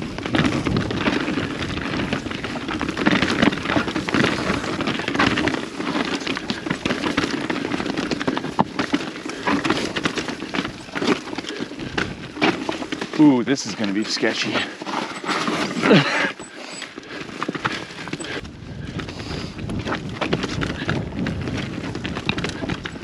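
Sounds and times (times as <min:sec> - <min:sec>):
bike tyres crackling over snow and dirt: 0:00.0 - 0:23.0.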